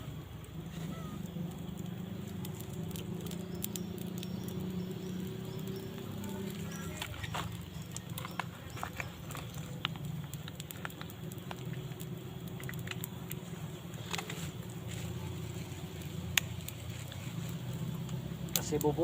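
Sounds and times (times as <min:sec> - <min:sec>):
small pops and crackles: 0:00.0 - 0:19.0.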